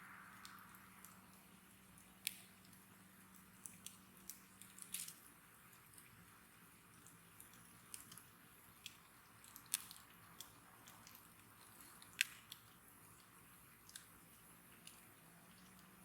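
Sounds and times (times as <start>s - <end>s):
faint hiss: 0.0s - 9.3s
wood bonfire crackling: 0.0s - 16.0s.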